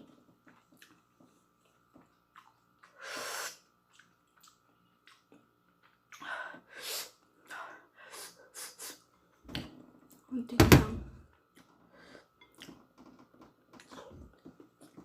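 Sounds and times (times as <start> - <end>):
person hissing through mouth: 3.0 - 3.6, 6.7 - 7.2, 8.1 - 9.0.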